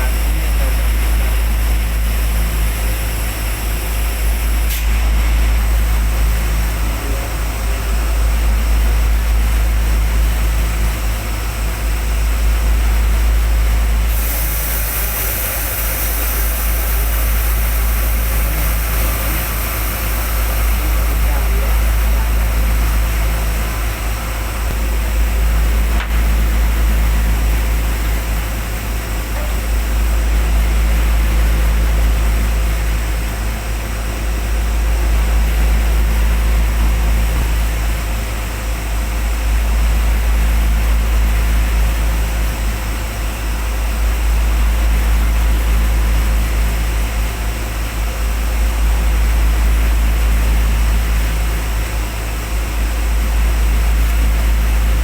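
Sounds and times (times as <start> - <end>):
machinery rumbling and hissing: 0.0 - 55.0.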